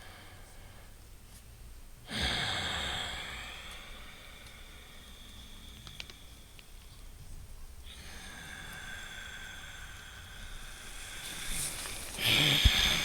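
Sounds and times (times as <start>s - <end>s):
breathing through the nose: 7.8s - 13.0s.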